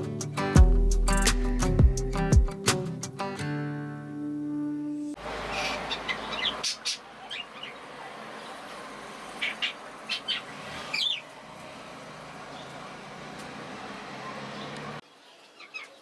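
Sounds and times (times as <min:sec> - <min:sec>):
small birds chirping: 0:05.2 - 0:16.0.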